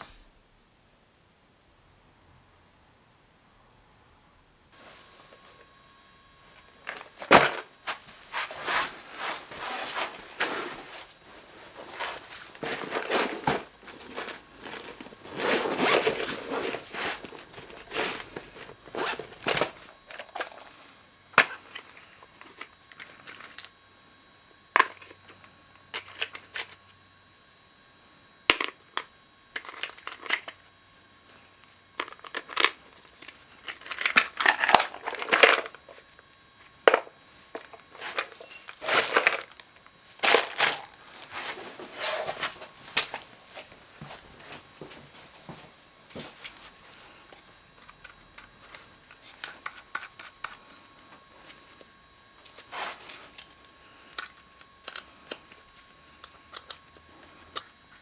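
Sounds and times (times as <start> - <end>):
tools and parts clicking and knocking: 12.0 - 20.7, 32.0 - 41.0, 47.7 - 50.6, 53.2 - 58.0.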